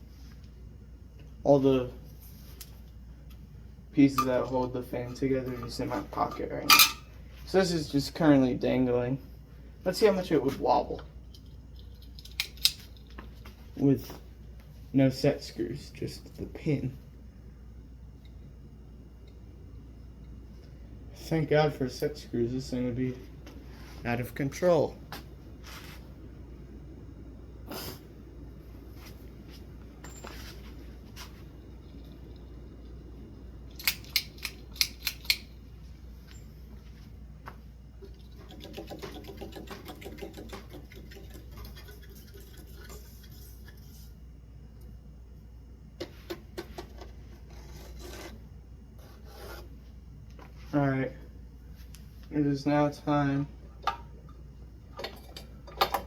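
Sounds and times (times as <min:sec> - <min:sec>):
steady low hum: 0:00.0 - 0:56.0
hands working on metal hardware: 0:04.2 - 0:07.1, 0:33.8 - 0:35.5.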